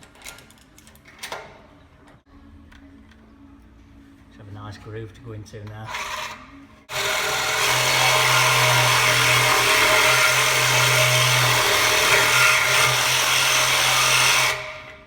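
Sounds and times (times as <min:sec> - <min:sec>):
power tool cutting exhaust pipe: 0:05.9 - 0:15.0.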